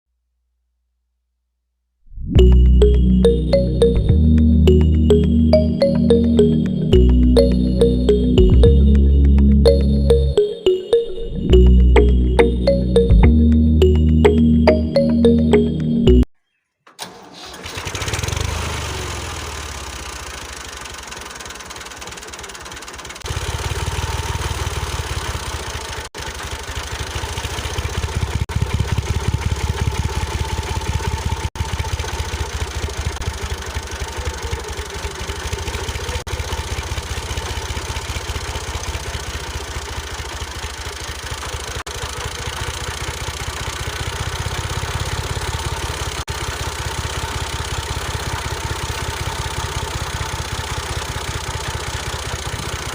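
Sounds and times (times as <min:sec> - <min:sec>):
engine chugging: 0:17.8 - 0:52.9.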